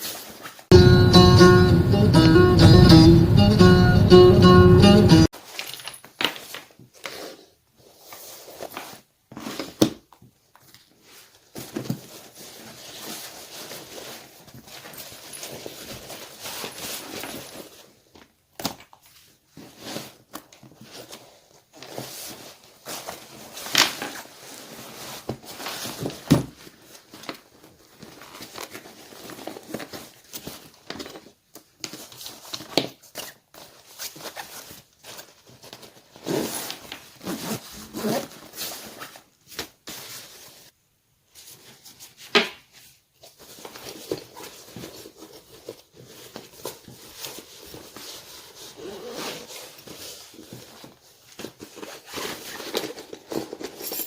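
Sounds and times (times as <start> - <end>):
rustling and handling noises: 0.0 - 0.8, 5.3 - 54.0.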